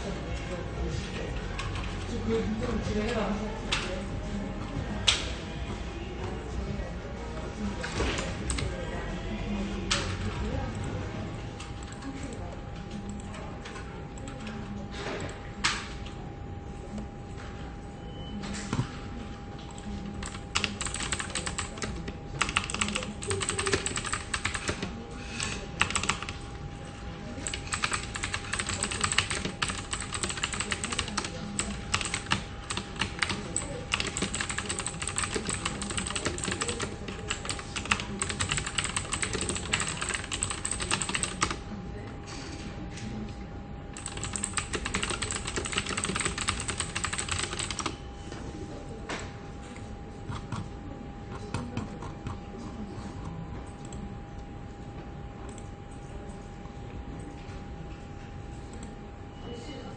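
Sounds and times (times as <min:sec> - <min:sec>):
keyboard typing: 0:19.6 - 0:26.4, 0:27.3 - 0:41.6, 0:44.0 - 0:48.0.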